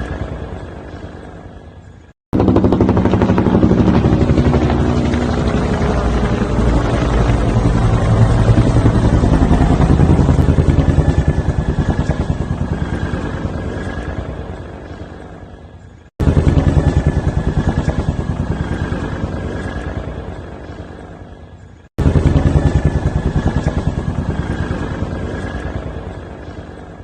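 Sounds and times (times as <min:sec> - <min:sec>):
helicopter engine hum: 0:00.0 - 0:27.0
helicopter rotor thumps: 0:02.3 - 0:13.8, 0:16.2 - 0:20.2, 0:22.0 - 0:26.0.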